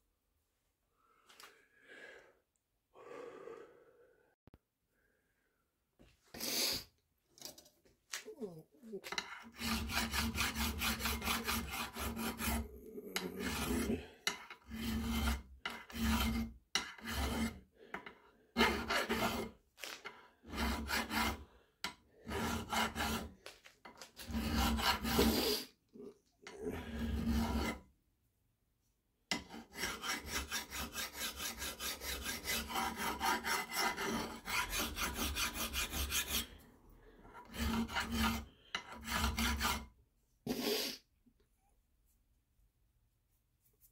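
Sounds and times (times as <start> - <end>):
hand file strokes: 9.0 - 25.8, 26.4 - 27.9, 29.3 - 41.0.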